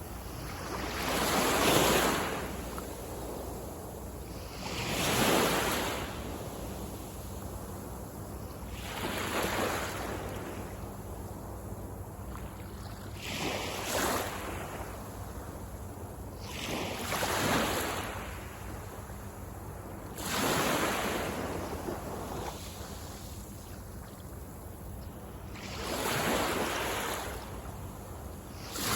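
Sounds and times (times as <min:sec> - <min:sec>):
waves breaking on beach: 0:00.0 - 0:03.6, 0:04.3 - 0:07.3, 0:08.7 - 0:10.6, 0:16.4 - 0:18.6, 0:20.2 - 0:23.6, 0:25.6 - 0:27.6, 0:28.6 - 0:28.9.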